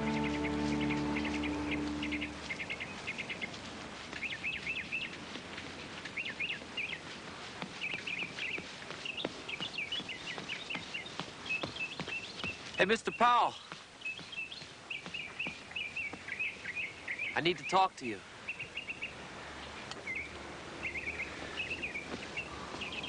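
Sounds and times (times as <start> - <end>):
held music notes: 0.0 - 2.8
small birds chirping: 0.0 - 23.0.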